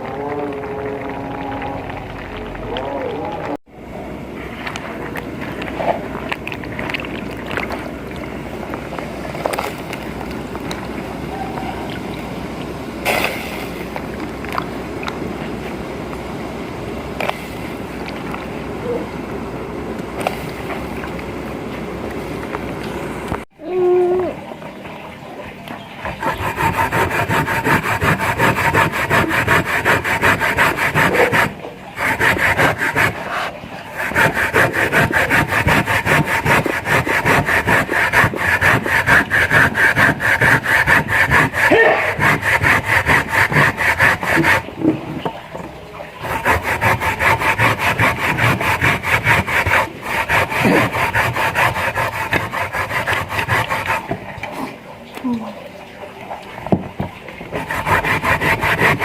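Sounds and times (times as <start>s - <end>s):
rapid hand scraping strokes: 26.0s - 44.8s, 46.2s - 54.2s, 57.5s - 59.0s.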